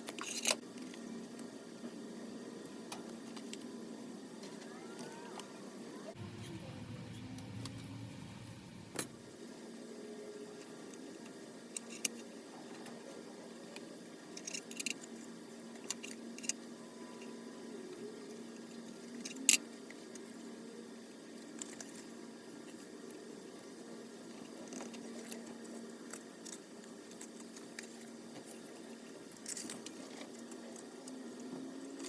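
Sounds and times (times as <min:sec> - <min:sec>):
steady low hum: 0:05.5 - 0:10.9.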